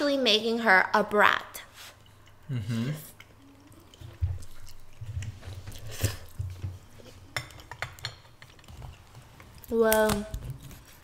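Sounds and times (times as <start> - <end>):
chewing noodles: 1.9 - 9.7.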